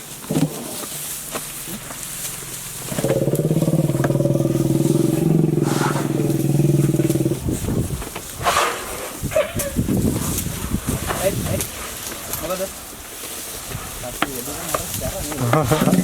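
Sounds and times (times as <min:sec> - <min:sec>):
jeep engine at raised revs: 0:01.8 - 0:07.6.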